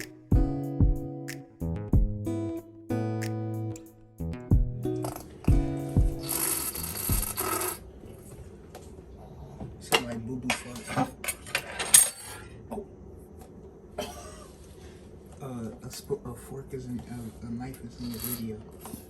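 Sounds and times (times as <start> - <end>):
metal cutlery clinking: 10.0 - 12.5.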